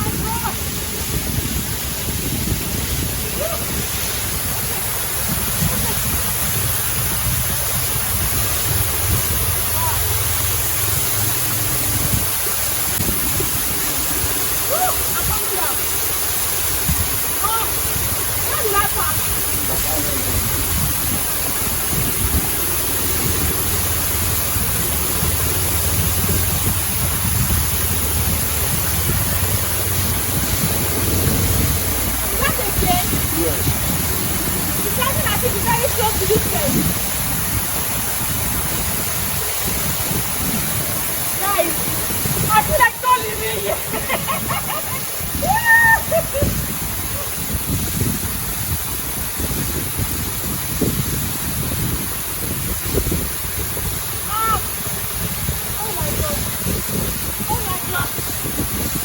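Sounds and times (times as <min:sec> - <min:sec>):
deep rumble: 0:00.0 - 0:42.8
waterfall roaring: 0:00.0 - 0:59.0.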